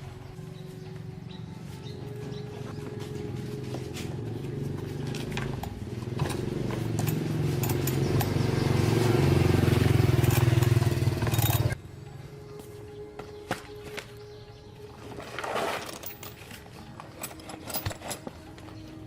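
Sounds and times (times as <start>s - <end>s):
chainsaw engine running: 4.1s - 11.8s.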